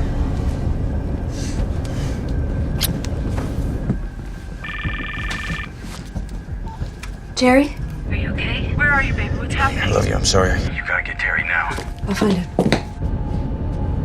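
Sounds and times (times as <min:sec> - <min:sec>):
airliner cabin rumble: 0:00.0 - 0:14.0
phone ringing trill: 0:04.6 - 0:05.7.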